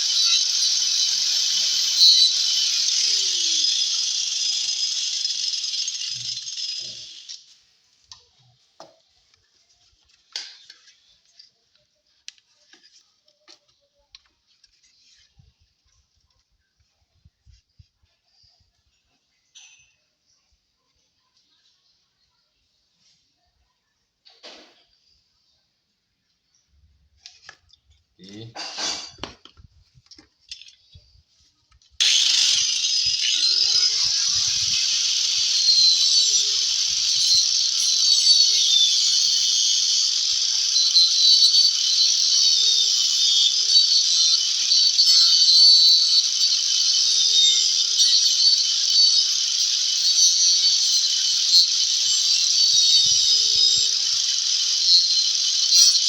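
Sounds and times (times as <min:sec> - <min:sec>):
electric power tool running: 0:00.0 - 0:07.4, 0:32.0 - 0:56.0.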